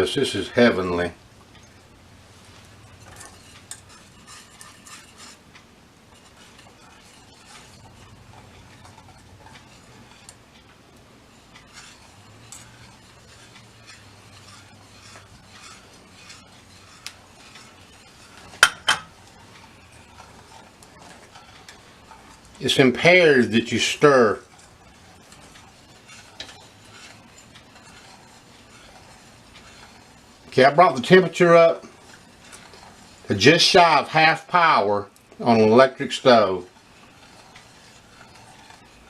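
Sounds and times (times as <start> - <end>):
whisk scraping a pan: 0.0 - 39.0
whisk ticking against metal pan: 0.0 - 39.0
whisk clinking on pan: 2.9 - 5.4, 6.1 - 34.8.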